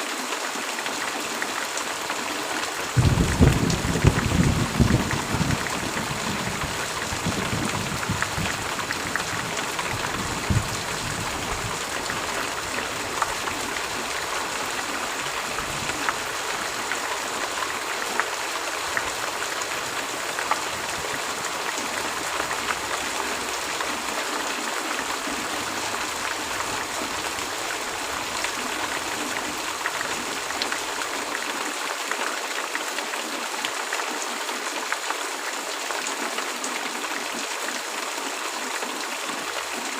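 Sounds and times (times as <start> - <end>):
heavy rain falling: 0.0 - 39.9
low rumble of thunder: 2.9 - 14.9.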